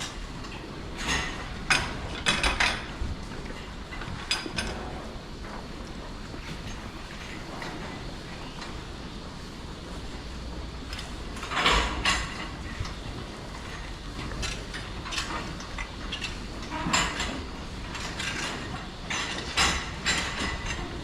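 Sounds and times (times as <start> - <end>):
steady low hum: 4.6 - 15.2
metallic clanks and rattles: 6.4 - 8.8.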